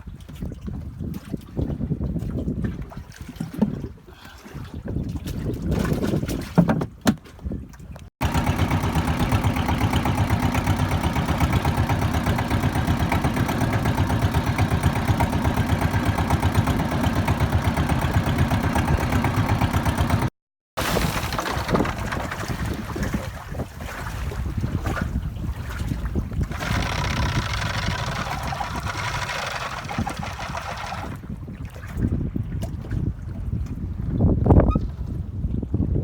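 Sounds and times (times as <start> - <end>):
wind noise: 0.0 - 8.1, 20.8 - 36.0
boat engine chugging: 8.2 - 20.3, 21.3 - 23.2, 26.4 - 31.2.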